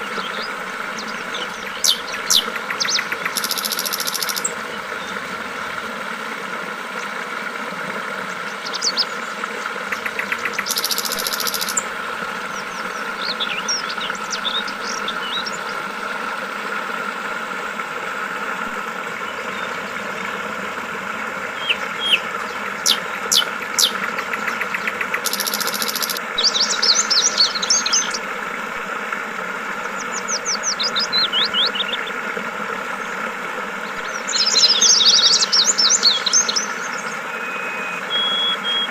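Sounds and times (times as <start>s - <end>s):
birds chirping: 0.0s - 5.2s, 8.4s - 16.2s, 21.4s - 28.2s, 33.8s - 38.9s
flowing water: 0.0s - 38.9s.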